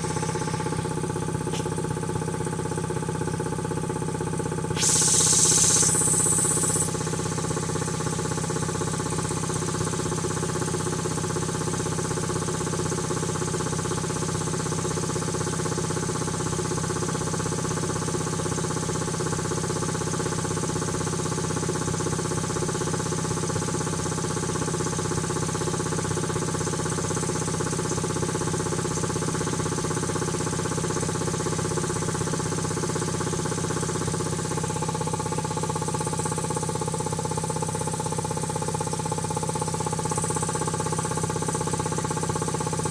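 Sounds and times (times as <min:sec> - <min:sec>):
air compressor pump running: 0:00.0 - 0:42.9
high hiss: 0:04.8 - 0:07.0.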